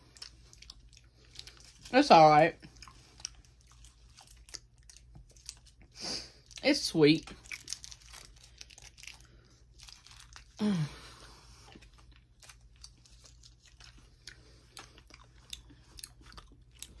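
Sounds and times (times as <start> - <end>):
person chewing chewy candy: 0.0 - 17.0.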